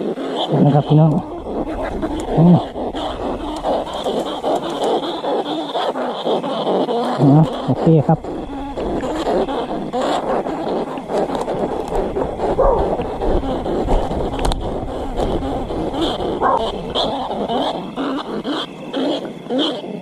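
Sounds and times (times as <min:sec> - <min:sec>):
dog-like whimpering and yipping: 0:12.0 - 0:14.2, 0:15.0 - 0:18.7.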